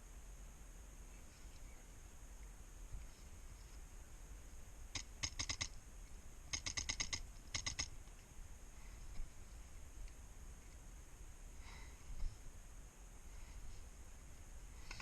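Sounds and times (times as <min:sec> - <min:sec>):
airsoft gun rapid firing: 0:05.0 - 0:05.7, 0:06.5 - 0:07.9.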